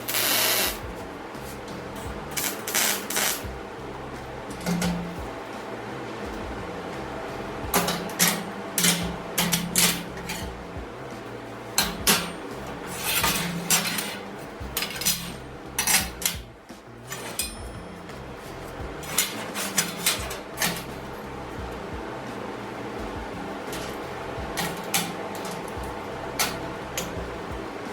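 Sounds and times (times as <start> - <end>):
metal clanks and clatters: 4.2 - 27.9.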